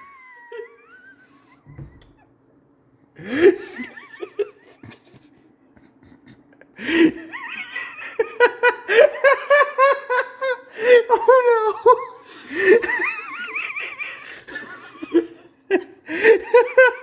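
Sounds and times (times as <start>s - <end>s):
young people laughing: 0.0s - 2.1s, 3.2s - 17.0s
faint low hum: 0.0s - 17.0s.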